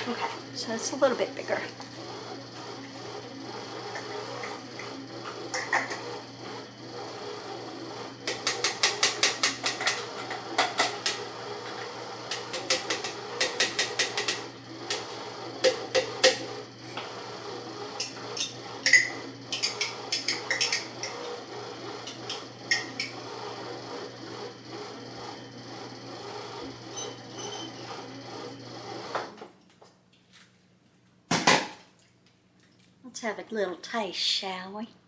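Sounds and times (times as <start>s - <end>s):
kitchen appliance motor humming: 0.0s - 29.6s
food clattering and knocking: 3.9s - 6.1s, 8.2s - 16.5s, 18.0s - 21.2s.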